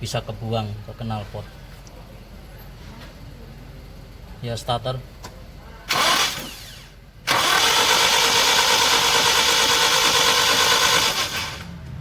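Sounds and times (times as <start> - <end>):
car engine cranking on starter: 5.9 - 11.8.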